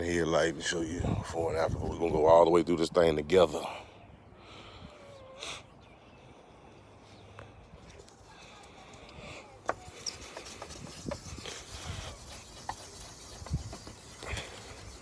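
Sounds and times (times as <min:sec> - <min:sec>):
sandpaper rubbing on plastic: 0:09.7 - 0:15.0.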